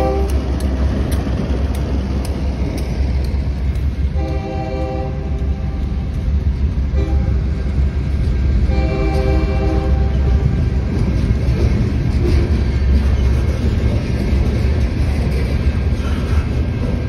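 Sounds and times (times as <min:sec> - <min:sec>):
locomotive horn blasts: 0:00.0 - 0:00.4, 0:04.1 - 0:06.0, 0:06.9 - 0:07.5, 0:08.7 - 0:10.6
freight train rumbling past: 0:00.0 - 0:17.0.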